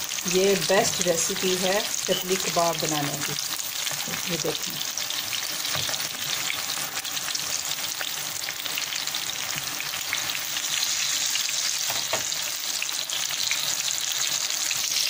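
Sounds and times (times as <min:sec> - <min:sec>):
kebabs sizzling in hot oil: 0:00.0 - 0:15.0.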